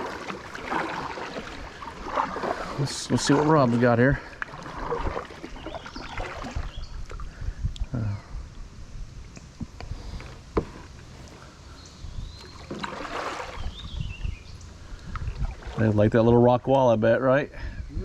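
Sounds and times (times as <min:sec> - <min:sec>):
light water sounds: 0:00.0 - 0:08.6, 0:09.2 - 0:16.8.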